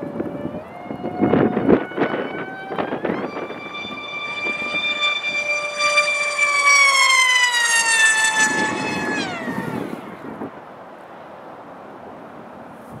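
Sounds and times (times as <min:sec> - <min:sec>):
model plane electric motor whine: 0:00.1 - 0:10.5.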